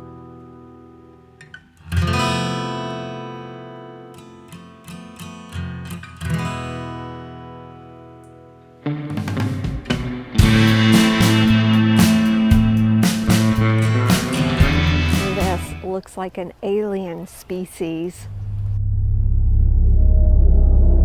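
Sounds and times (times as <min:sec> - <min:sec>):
acoustic guitar music: 0:00.0 - 0:18.2.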